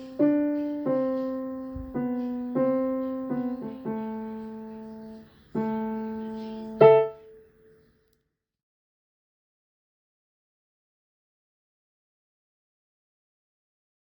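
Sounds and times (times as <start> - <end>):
piano playing slow melody: 0.0 - 7.4.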